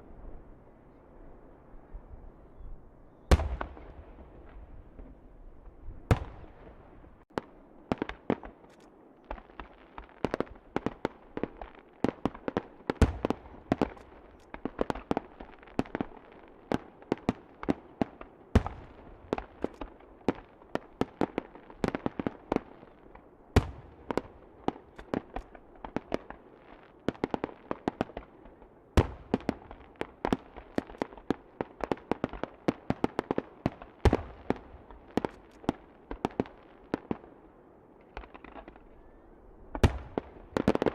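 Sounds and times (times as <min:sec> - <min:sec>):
fireworks bangs and cracks: 0:06.1 - 0:23.0, 0:29.0 - 0:37.2, 0:39.7 - 0:40.9.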